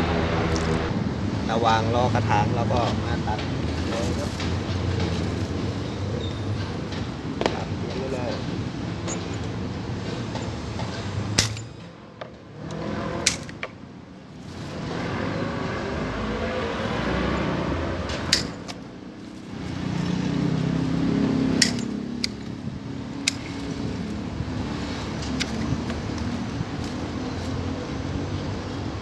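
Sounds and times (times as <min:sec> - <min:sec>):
shears snipping stems: 0:00.2 - 0:00.9, 0:07.9 - 0:11.8, 0:12.7 - 0:13.7, 0:17.9 - 0:28.8.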